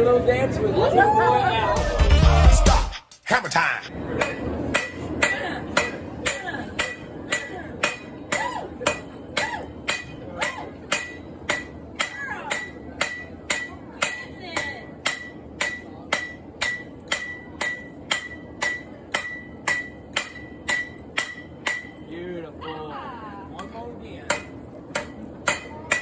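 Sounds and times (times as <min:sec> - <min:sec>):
hammer striking metal on anvil: 0:04.1 - 0:22.1, 0:23.6 - 0:26.0
anvil ringing: 0:04.1 - 0:22.8, 0:23.6 - 0:26.0.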